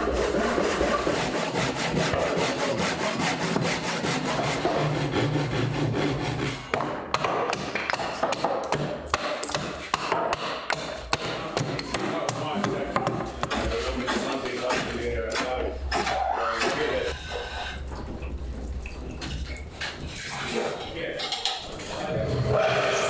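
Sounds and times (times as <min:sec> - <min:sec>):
hand tool scraping wood: 0:00.0 - 0:06.9, 0:10.8 - 0:17.8.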